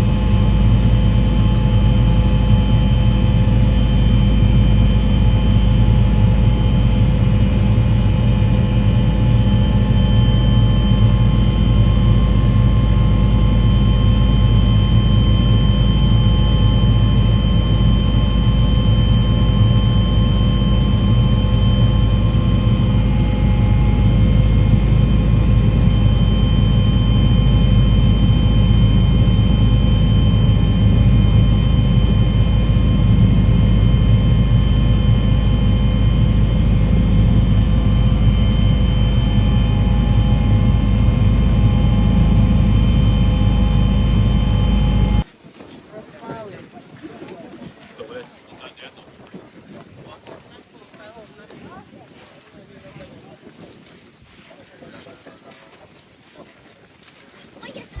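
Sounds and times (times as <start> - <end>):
aircraft engine drone: 0.0 - 45.3.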